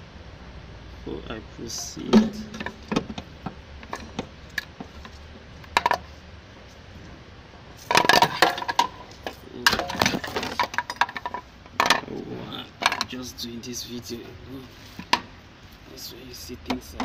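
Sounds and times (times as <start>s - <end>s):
metal tools clinking and clattering: 1.8s - 3.0s.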